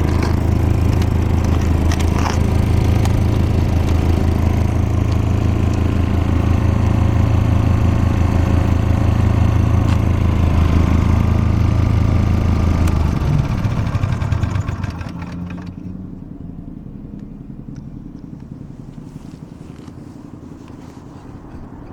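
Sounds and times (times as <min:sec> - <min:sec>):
air compressor engine running: 0:00.0 - 0:16.0.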